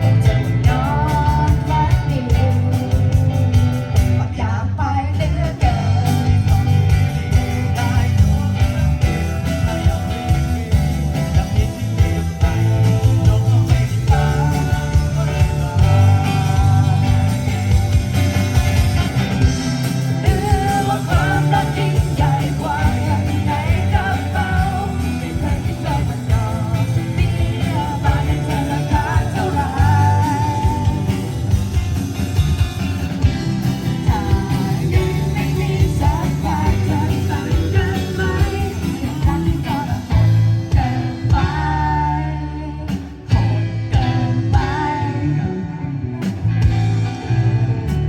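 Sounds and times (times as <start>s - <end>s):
person singing: 0.0s - 31.8s, 33.5s - 46.2s
bass guitar: 0.0s - 48.0s
drums: 0.0s - 48.0s
electric guitar: 0.0s - 48.0s.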